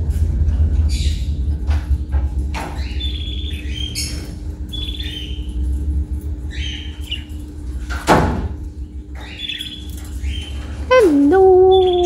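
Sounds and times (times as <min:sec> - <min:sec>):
steady low hum: 0:00.0 - 0:12.0
budgerigars chirping: 0:02.6 - 0:05.6, 0:06.5 - 0:07.4, 0:09.2 - 0:10.6.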